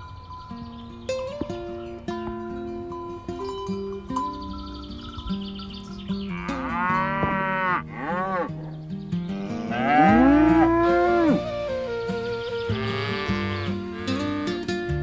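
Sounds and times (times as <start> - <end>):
cows mooing: 6.2 - 14.9.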